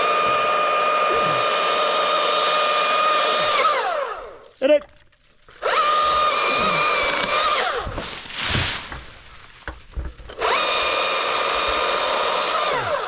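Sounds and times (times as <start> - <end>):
electric chainsaw whining: 0.0 - 4.6, 5.5 - 8.3, 10.3 - 13.0.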